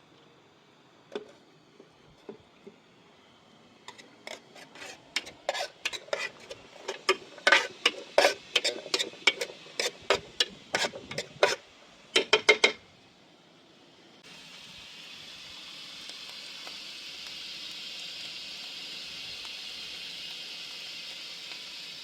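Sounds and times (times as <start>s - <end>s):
metal utensil scraping cookware: 3.9s - 11.6s, 12.2s - 12.8s.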